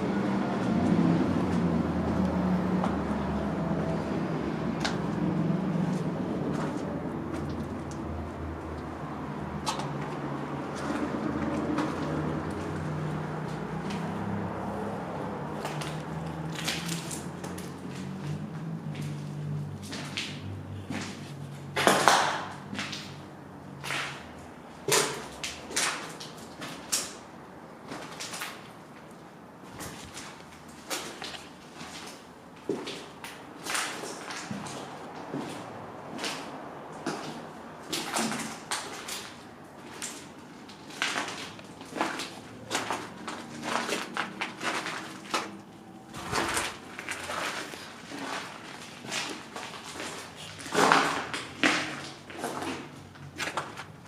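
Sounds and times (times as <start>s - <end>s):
footsteps crunching over debris: 29.6s - 54.0s.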